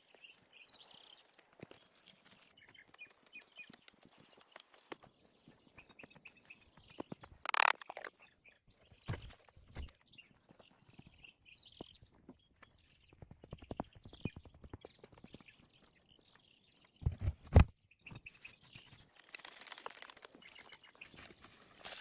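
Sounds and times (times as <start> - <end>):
rustling scrape: 19.4 - 22.0.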